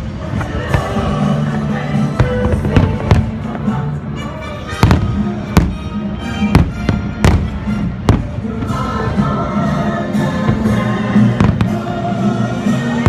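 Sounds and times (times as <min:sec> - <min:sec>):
patriotic show music: 0:00.0 - 0:13.0
fireworks bursting with loud bangs: 0:00.1 - 0:03.9, 0:04.7 - 0:08.8, 0:10.5 - 0:11.9.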